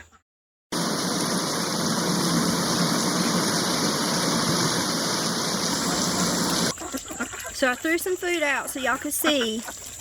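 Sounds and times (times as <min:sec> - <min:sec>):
steady rain hiss: 0:00.8 - 0:06.7.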